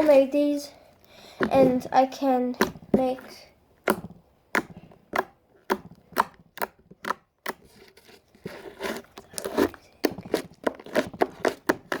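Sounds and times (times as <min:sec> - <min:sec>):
slime squelching: 0:00.0 - 0:12.0
slime squished with pops and clicks: 0:02.2 - 0:07.7, 0:09.2 - 0:12.0.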